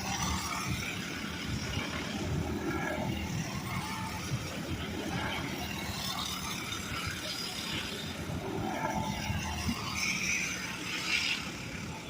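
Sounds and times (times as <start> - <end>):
small racing engines running: 0.0 - 12.0.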